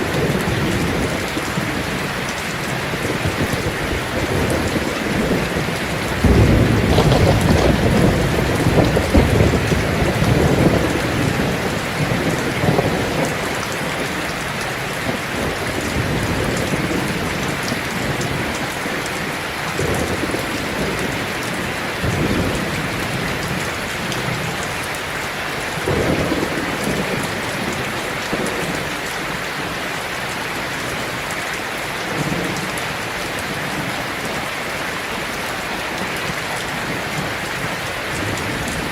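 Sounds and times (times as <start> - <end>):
thunder rumbling: 0.0 - 24.9, 25.7 - 29.8
rain on a tin roof: 0.0 - 38.9.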